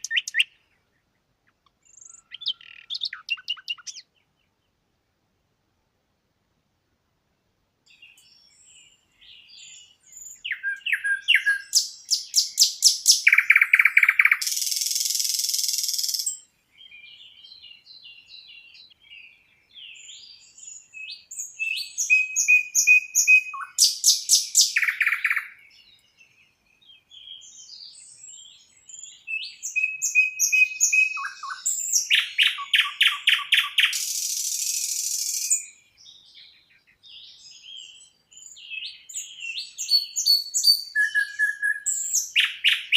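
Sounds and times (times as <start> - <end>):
songbird singing: 0.0 - 5.2, 7.3 - 42.9
faint short bird chirps: 1.8 - 4.4, 7.9 - 16.5, 18.0 - 35.8.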